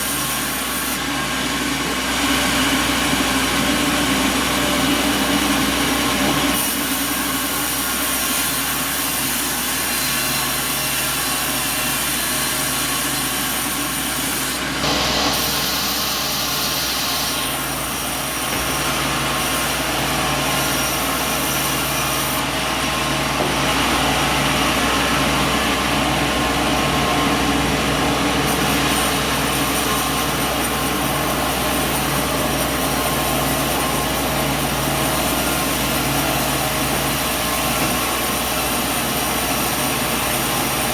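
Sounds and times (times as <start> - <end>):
sawmill saw cutting wood: 0.0 - 40.9
machine hum: 14.8 - 17.4, 22.4 - 39.5.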